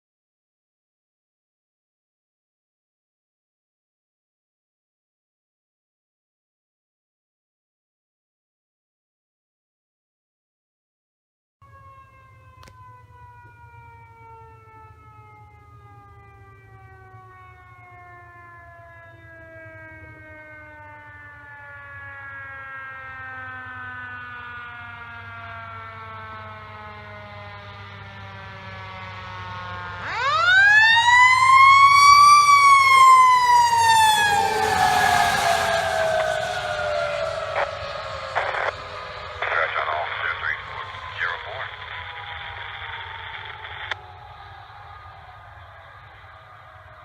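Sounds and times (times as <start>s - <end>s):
mechanical siren wailing: 11.6s - 47.0s
engine humming: 25.6s - 47.0s.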